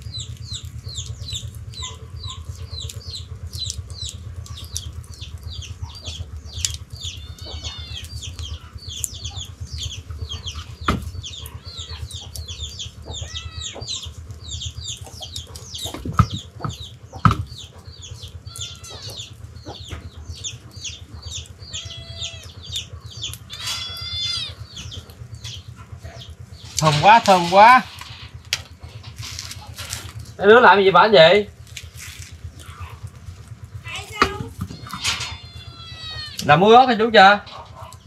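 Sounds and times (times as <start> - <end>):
birds chirping: 0.0 - 38.0
steady low hum: 0.0 - 38.0.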